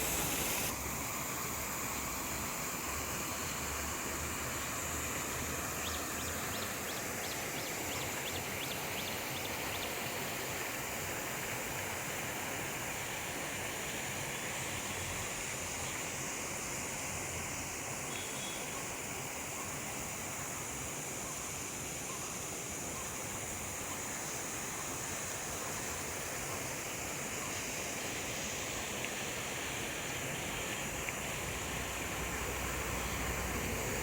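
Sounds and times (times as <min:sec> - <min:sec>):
running water rushing: 0:00.0 - 0:34.0
faint high ticks: 0:31.0 - 0:31.3.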